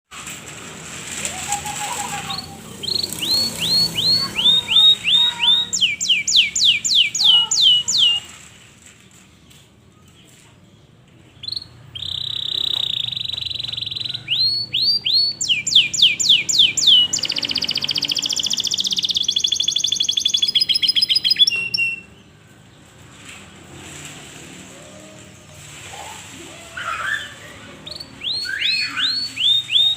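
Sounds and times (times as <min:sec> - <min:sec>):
canary singing: 0:01.1 - 0:08.4, 0:10.7 - 0:22.4, 0:24.9 - 0:29.9.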